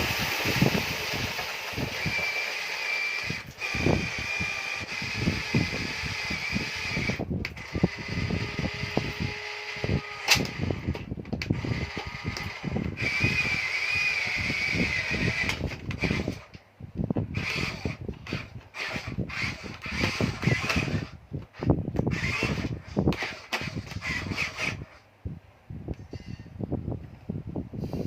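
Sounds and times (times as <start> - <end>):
small electric motors whining: 0.0 - 16.6, 17.2 - 25.0.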